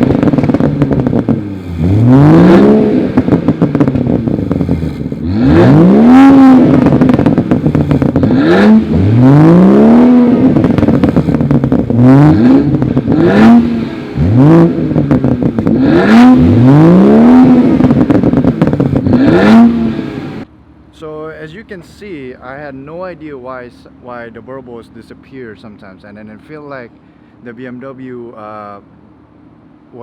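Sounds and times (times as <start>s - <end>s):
exhaust pops on overrun: 0.0s - 20.1s
car exhaust revving: 0.0s - 20.8s.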